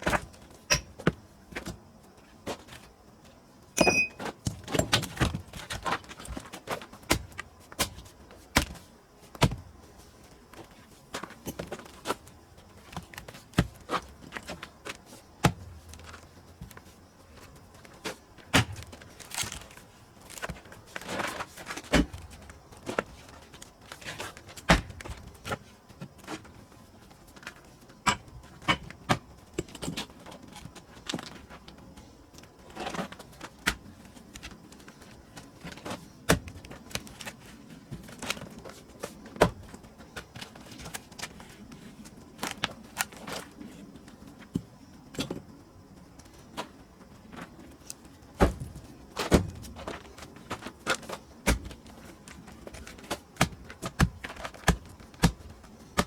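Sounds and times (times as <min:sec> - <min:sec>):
soft scuffs and rustles: 0:30.0 - 0:56.0
wood knocks and cracks: 0:48.4 - 0:51.9, 0:52.6 - 0:56.0.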